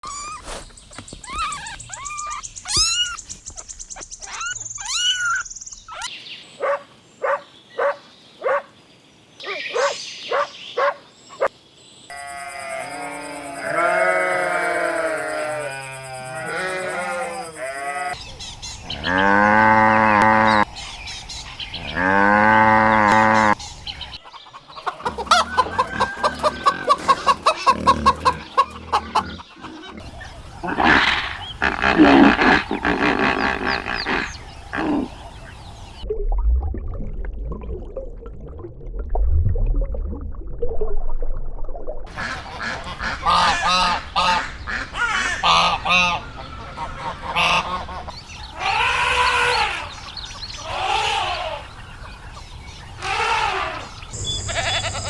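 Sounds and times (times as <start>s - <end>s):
chickens chirping and clucking: 23.4s - 36.1s
deep livestock calls: 24.9s - 35.2s, 53.0s - 55.0s
short grunting pulses: 25.0s - 35.2s
flock bleating: 53.0s - 55.0s.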